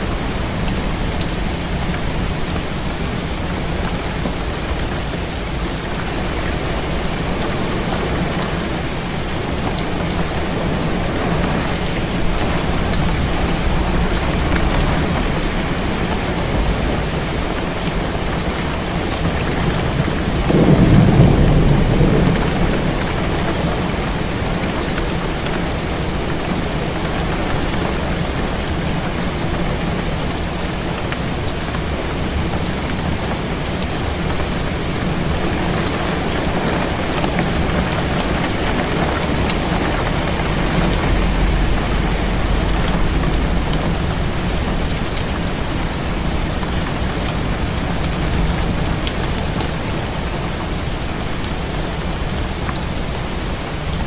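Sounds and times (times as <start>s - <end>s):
low roll of thunder: 0.0s - 28.0s, 37.6s - 49.9s
heavy rain against a window: 0.0s - 54.0s.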